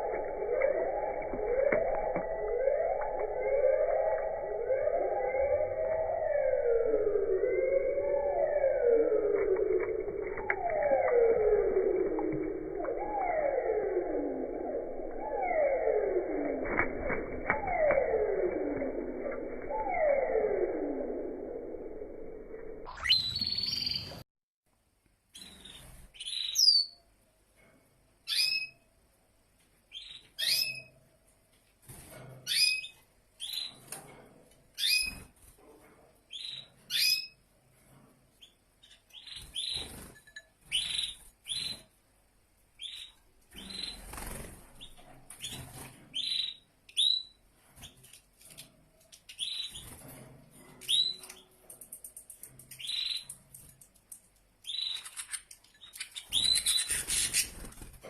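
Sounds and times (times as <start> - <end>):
songbird chirping: 0.0 - 24.2, 50.8 - 53.5, 54.6 - 57.7.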